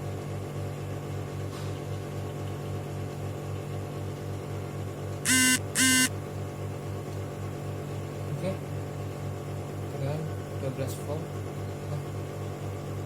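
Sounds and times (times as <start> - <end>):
electrical hum with low pulsing: 2.0 - 13.0
short electronic beeps: 5.3 - 6.1.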